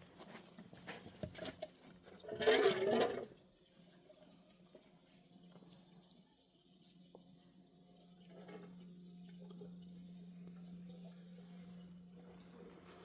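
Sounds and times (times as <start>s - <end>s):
high insect chirp pulsing: 3.2s - 13.0s.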